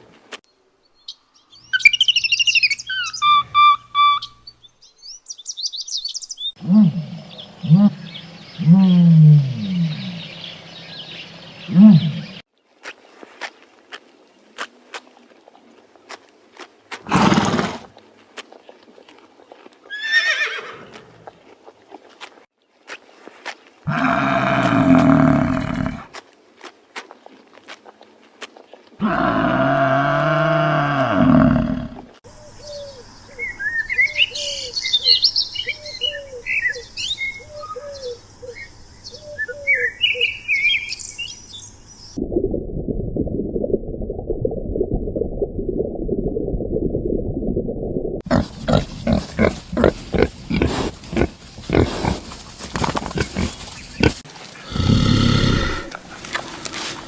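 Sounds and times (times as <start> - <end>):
deep animal call: 23.9 - 26.1, 29.0 - 32.2, 48.3 - 56.1
birds singing and chirping: 32.4 - 42.2, 48.3 - 54.2
high quavering animal call: 48.3 - 56.0.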